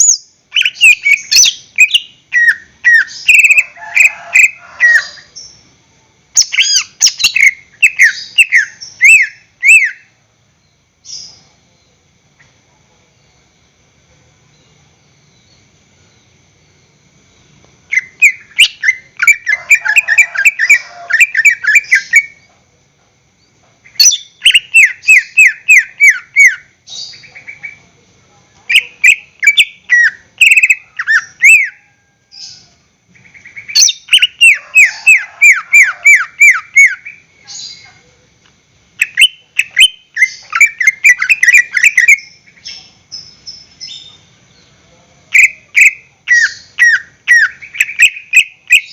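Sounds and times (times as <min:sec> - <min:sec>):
bird singing fast repeated notes: 0:00.0 - 0:05.7, 0:06.3 - 0:10.2, 0:17.9 - 0:22.4, 0:23.9 - 0:27.8, 0:28.7 - 0:31.9, 0:33.2 - 0:37.8, 0:39.0 - 0:44.2, 0:45.3 - 0:48.9.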